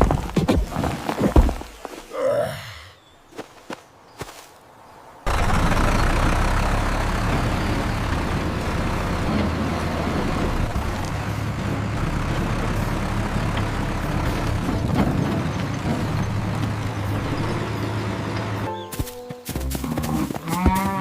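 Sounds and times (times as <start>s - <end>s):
vehicle engine running: 5.3s - 20.8s.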